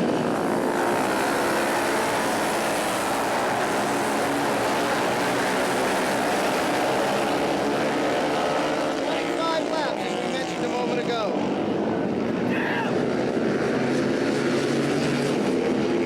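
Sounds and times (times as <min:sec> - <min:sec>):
racing motorcycle engines droning: 0:00.0 - 0:16.0.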